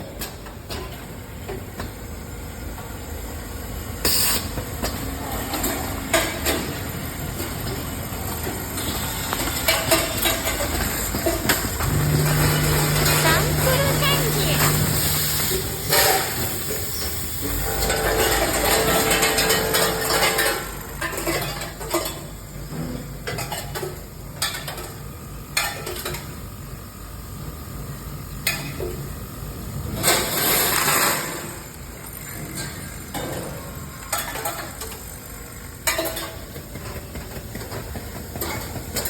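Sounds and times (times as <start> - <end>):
packaging machine humming: 3.3 - 21.3
products rattling and clinking: 7.3 - 17.2.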